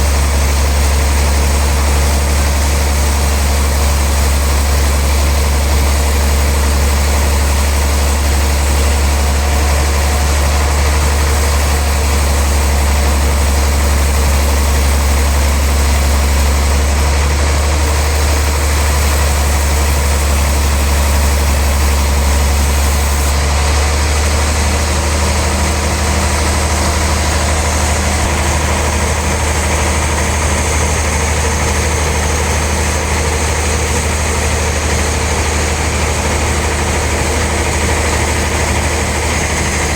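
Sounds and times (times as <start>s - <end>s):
sawmill machine humming: 0.0s - 39.9s.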